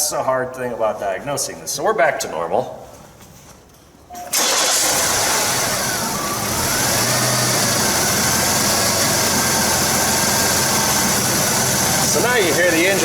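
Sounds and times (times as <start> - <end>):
car engine idling: 4.4 - 13.0.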